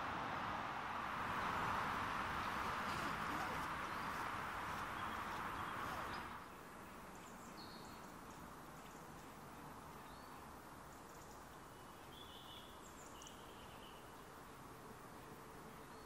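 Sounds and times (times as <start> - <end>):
low forest hush: 0.0 - 16.0
small birds chirping: 2.2 - 14.6.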